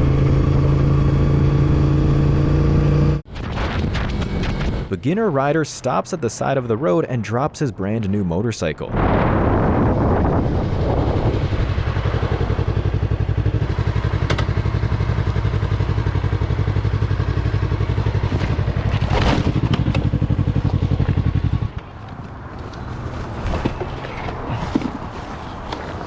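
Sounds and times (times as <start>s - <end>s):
motorcycle engine running: 10.4s - 26.0s.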